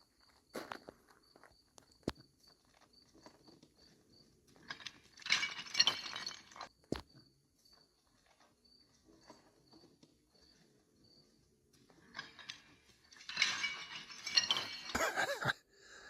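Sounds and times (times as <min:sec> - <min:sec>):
footsteps on gravel: 0:00.0 - 0:03.5.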